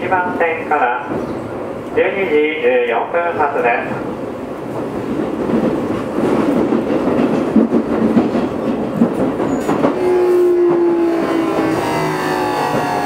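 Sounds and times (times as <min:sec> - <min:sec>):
train wheel and rail clatter: 0:00.0 - 0:13.0.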